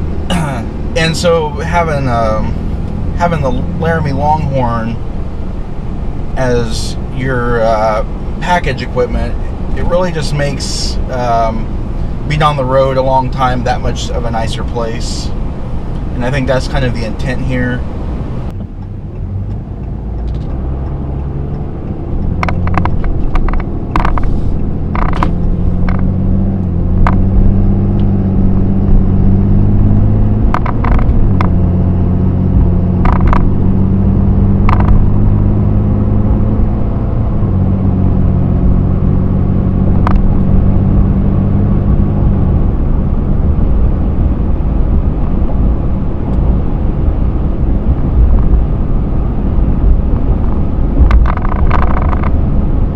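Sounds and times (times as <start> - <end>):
diesel engine pulling: 0.0 - 52.9
road noise: 0.0 - 52.9
sharp clicks and knocks: 18.5 - 28.2, 30.4 - 31.7, 32.6 - 33.7, 34.6 - 35.1, 40.0 - 41.1, 49.8 - 52.5.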